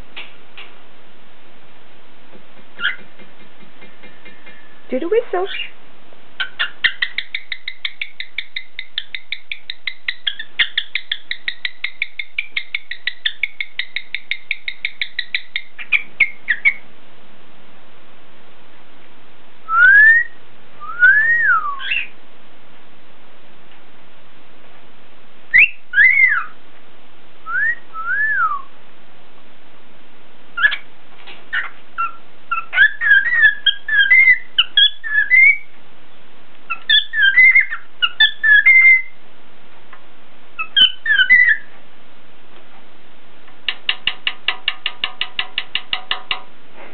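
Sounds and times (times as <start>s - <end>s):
cockatiel whistling and chirping: 6.4s - 16.8s, 19.7s - 22.1s, 25.5s - 26.6s, 30.6s - 30.8s, 31.5s - 35.7s, 36.7s - 39.2s, 40.6s - 41.7s.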